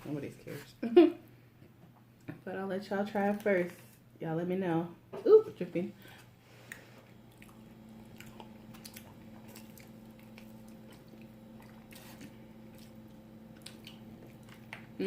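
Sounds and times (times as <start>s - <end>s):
faint steady hum: 0.0s - 15.0s
person chewing food: 6.0s - 15.0s.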